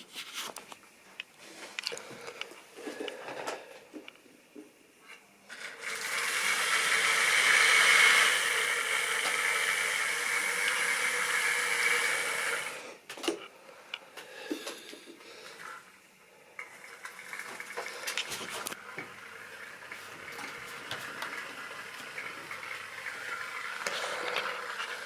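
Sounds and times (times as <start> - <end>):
model train motor whirring: 5.5 - 12.9, 20.6 - 25.0.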